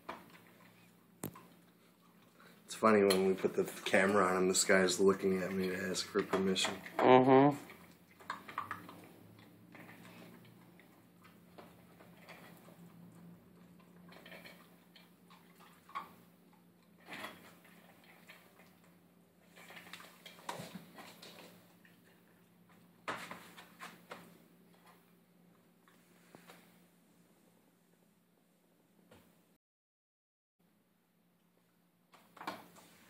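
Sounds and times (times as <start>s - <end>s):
puppy eating from bowl: 0.0s - 25.2s.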